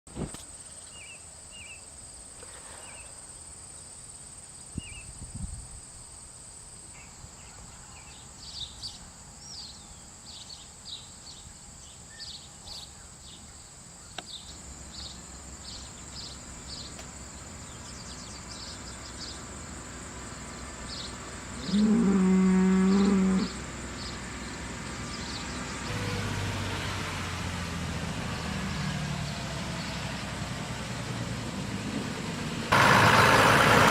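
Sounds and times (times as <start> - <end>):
low engine hum: 14.3 - 33.9
cow mooing: 21.6 - 23.6.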